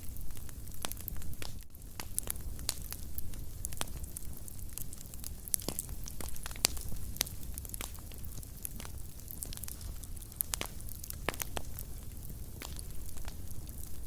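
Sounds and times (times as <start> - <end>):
fire crackling and popping: 0.0 - 14.0
flames rumbling: 0.0 - 14.0.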